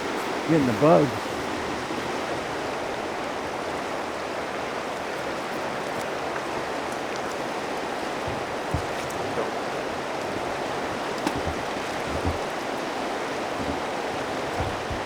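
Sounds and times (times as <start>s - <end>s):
river water rushing: 0.0s - 15.0s
faint ticks: 10.2s - 12.6s.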